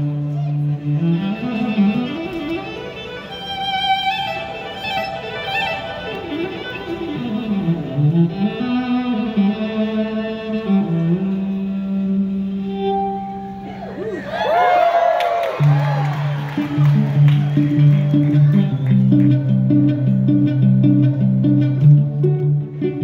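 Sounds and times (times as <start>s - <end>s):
violin playing: 0.0s - 14.1s, 15.6s - 23.0s
sustained lower notes: 6.9s - 14.3s.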